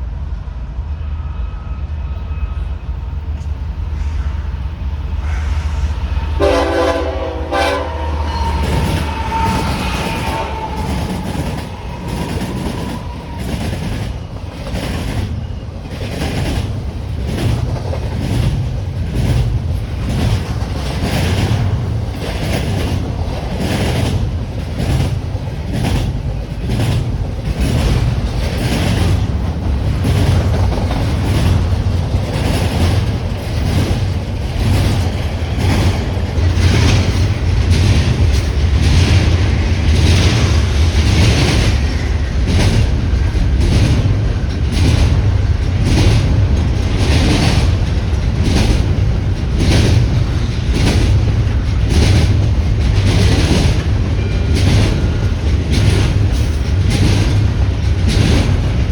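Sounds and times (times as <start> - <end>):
train horn: 0.9 - 3.3, 4.0 - 13.9
train wheels clacking over rail joints: 3.3 - 58.9.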